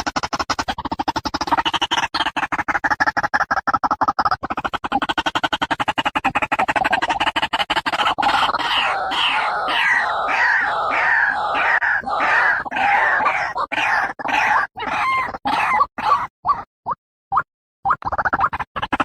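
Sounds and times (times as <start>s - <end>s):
bird harsh repeated calls: 4.2s - 16.6s.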